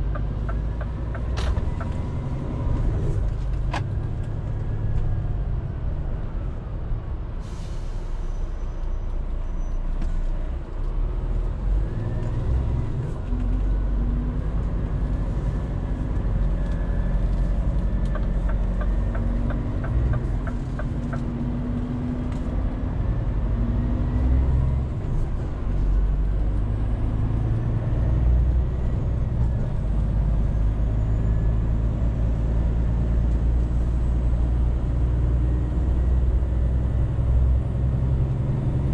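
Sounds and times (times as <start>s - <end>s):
road noise: 0.0s - 38.9s
truck diesel engine: 0.0s - 38.9s.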